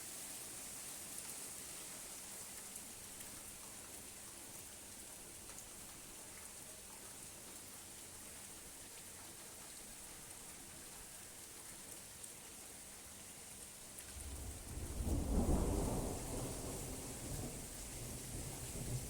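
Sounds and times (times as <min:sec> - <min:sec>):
rain falling: 0:00.0 - 0:19.0
thunder rumbling: 0:14.2 - 0:19.0.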